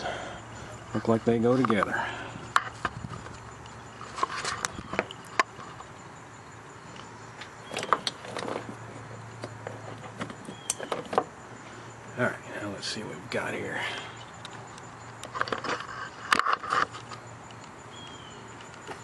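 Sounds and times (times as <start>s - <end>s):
hands handling wiring connectors: 0.7s - 6.0s, 6.9s - 11.3s.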